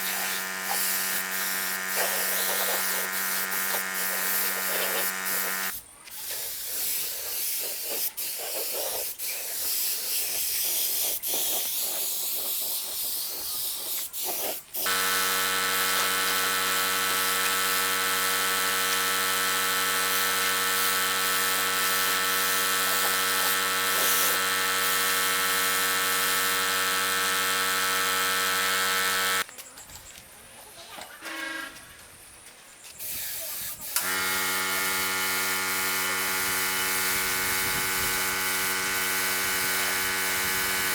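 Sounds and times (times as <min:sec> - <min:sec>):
electric power tool motor running: 0:00.0 - 0:05.8, 0:14.8 - 0:29.5, 0:34.0 - 0:40.9.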